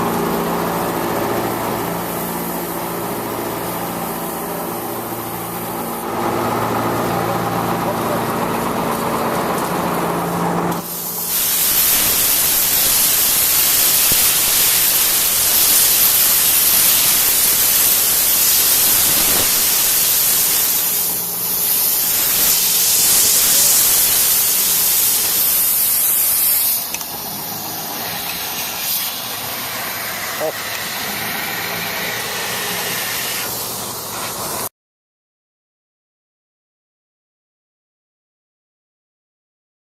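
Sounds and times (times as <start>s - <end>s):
loud steady hiss: 10.8s - 34.7s.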